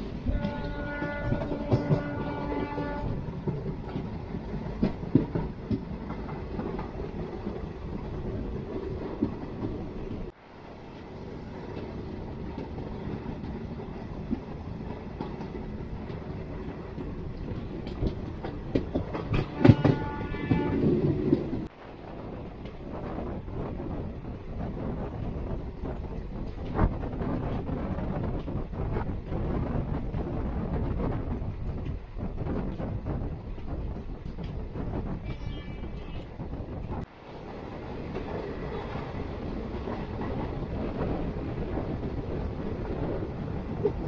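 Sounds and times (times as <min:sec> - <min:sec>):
train wheels clicking over rail joints: 0:00.0 - 0:10.4, 0:11.6 - 0:21.7
locomotive horn: 0:00.2 - 0:03.2, 0:19.3 - 0:21.4, 0:35.2 - 0:36.3.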